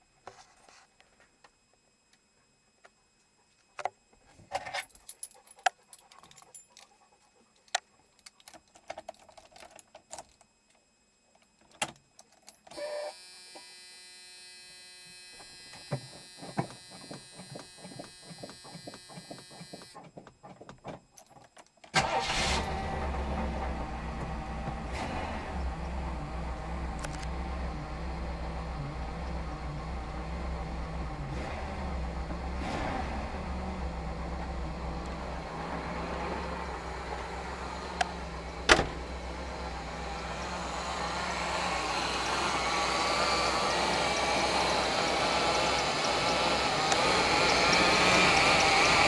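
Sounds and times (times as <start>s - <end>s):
car engine idling: 22.0s - 49.0s.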